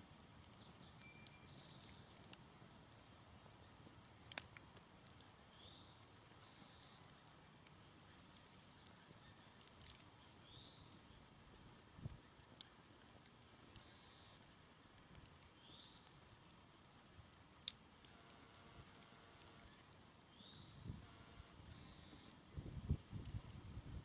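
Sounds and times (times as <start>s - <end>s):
campfire crackling faintly: 0.0s - 24.0s
bird chirping: 0.5s - 2.3s, 5.5s - 11.3s, 15.5s - 16.3s, 19.7s - 20.9s.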